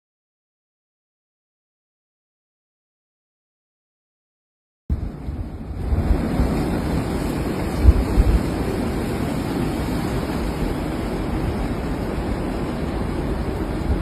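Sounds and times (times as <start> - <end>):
strong wind on microphone: 4.9 - 14.0.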